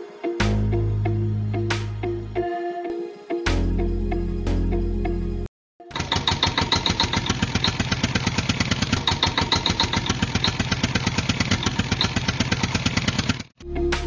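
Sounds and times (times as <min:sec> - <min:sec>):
tractor engine chugging: 0:05.9 - 0:13.6.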